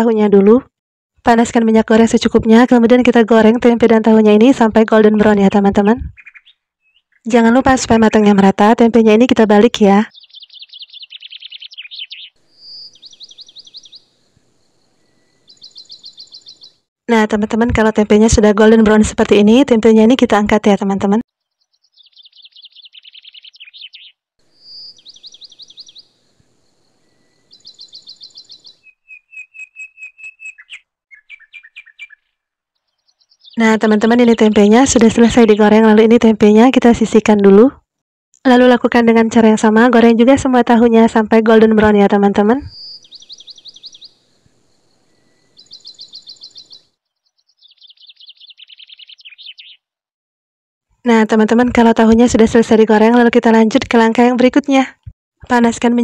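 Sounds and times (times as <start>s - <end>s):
songbird chirping: 1.3s - 37.6s, 38.4s - 50.0s.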